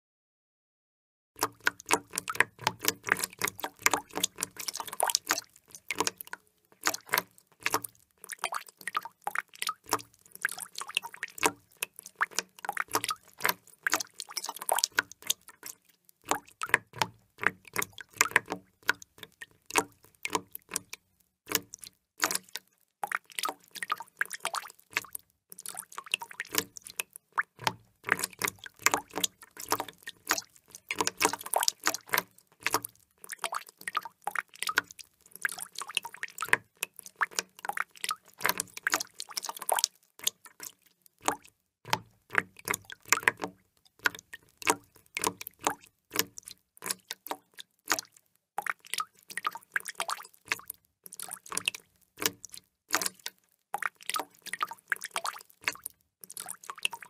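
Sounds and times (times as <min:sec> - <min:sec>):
water drops falling into water: 0:01.4 - 0:57.0.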